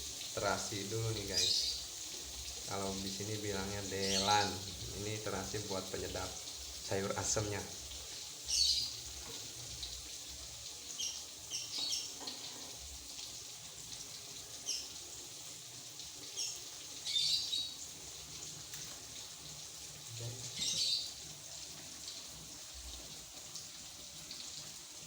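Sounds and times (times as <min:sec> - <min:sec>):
faint steady hiss: 0:00.0 - 0:25.0
bird chirps: 0:08.5 - 0:09.0, 0:20.6 - 0:21.1.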